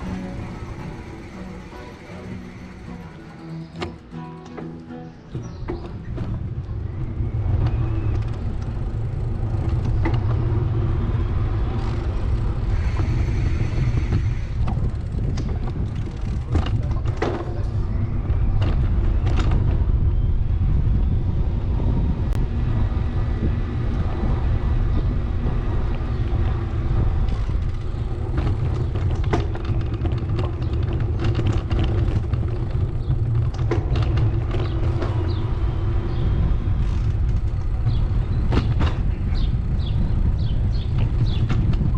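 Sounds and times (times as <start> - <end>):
wind and road noise: 0.0 - 41.9
clicks and rattles: 14.6 - 17.8, 25.9 - 35.5.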